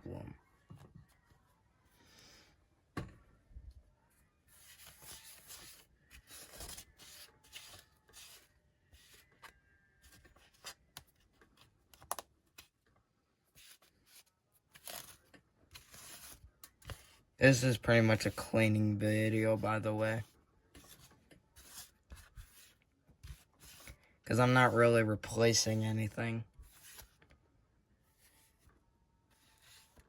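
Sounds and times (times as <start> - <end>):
scratchy rubbing and scraping: 13.6 - 17.2, 20.8 - 24.0, 26.6 - 27.2.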